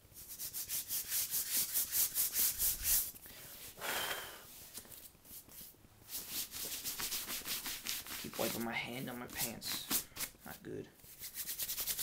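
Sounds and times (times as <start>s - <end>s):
hands rubbing on trouser fabric: 4.5s - 12.0s.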